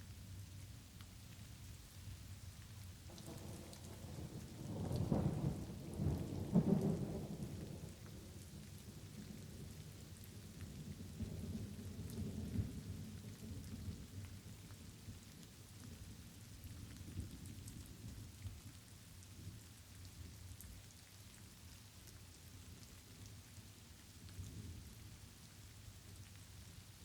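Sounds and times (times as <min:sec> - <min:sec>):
light rain falling: 0:00.0 - 0:27.0
rolling thunder: 0:03.1 - 0:08.0.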